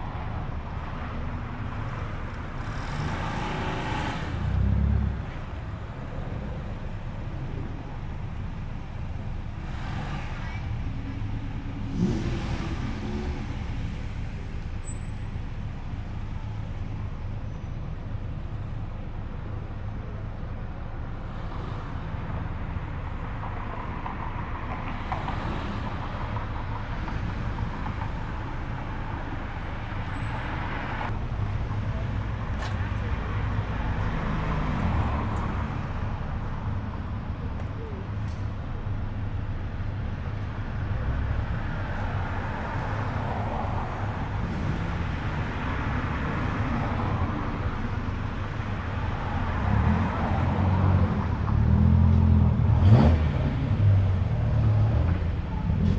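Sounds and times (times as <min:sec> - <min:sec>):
car engines rumbling: 0:00.0 - 0:55.9
engine revving: 0:11.9 - 0:13.7, 0:51.6 - 0:55.2.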